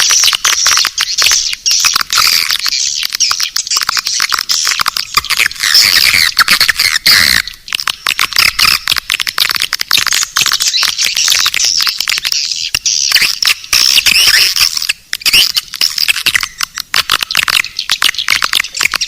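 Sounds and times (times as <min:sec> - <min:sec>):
swiftlets chirping: 0:00.0 - 0:19.0.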